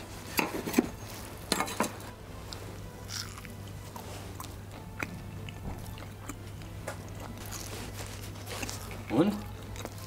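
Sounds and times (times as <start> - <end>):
person biting and chewing: 3.0 - 10.0.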